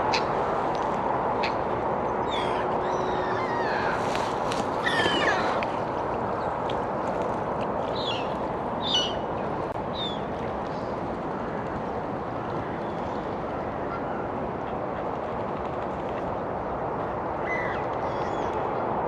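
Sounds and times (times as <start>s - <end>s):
birds calling: 2.2s - 6.6s, 7.9s - 9.3s.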